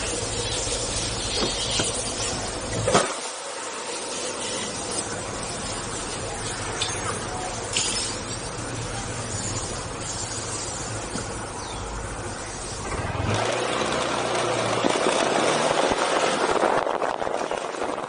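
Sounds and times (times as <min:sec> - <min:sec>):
scooter engine idling: 0:00.0 - 0:02.9.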